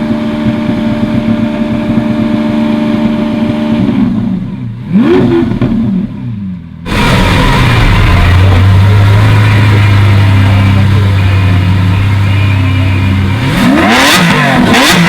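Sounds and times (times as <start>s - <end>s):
sports car engine revving: 0.0s - 15.0s.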